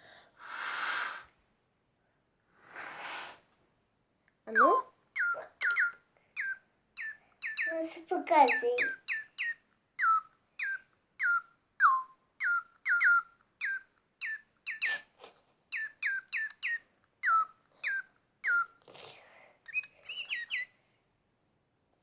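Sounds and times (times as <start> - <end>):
brief hiss: 2.7 - 3.5
electronic toy bird chirping: 4.5 - 15.1, 15.7 - 18.8, 19.6 - 20.8.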